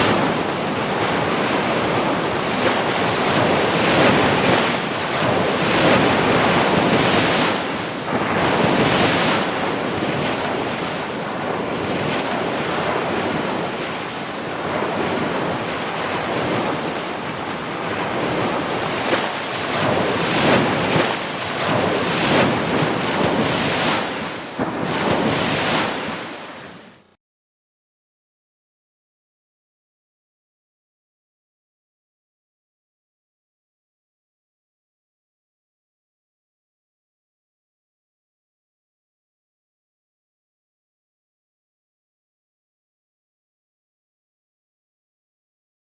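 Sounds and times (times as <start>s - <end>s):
ocean waves washing ashore: 0.0s - 27.2s.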